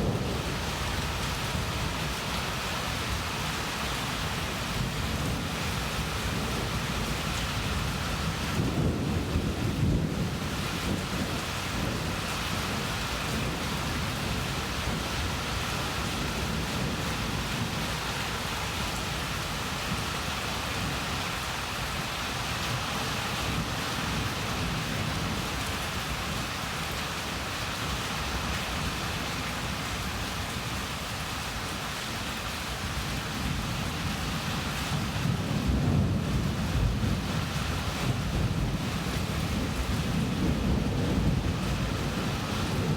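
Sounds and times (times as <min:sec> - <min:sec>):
thunder rumbling: 0:00.0 - 0:02.4, 0:34.9 - 0:42.9
heavy rain: 0:00.0 - 0:42.9.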